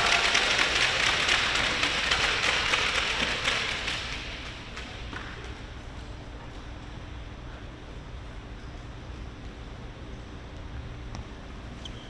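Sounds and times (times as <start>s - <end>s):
spectators clapping: 0.0s - 5.6s
low hall background: 0.0s - 12.0s.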